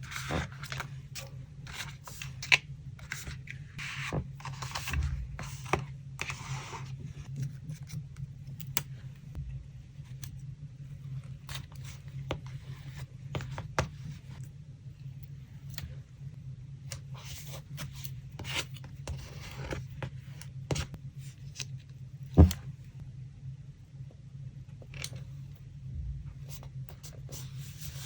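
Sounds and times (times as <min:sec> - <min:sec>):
paper rustling and scraping: 0:00.0 - 0:08.0, 0:26.4 - 0:28.0
steady low hum: 0:00.0 - 0:28.0.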